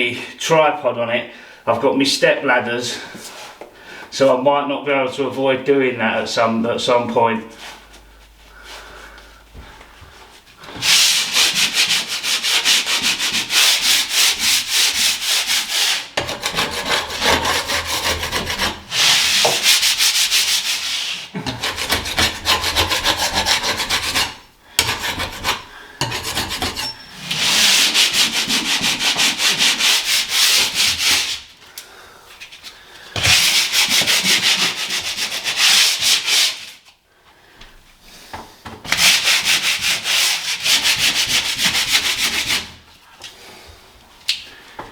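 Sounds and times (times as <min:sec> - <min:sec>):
sandpaper rubbing on ceiling: 0:10.6 - 0:31.6, 0:32.4 - 0:36.9, 0:38.9 - 0:42.8.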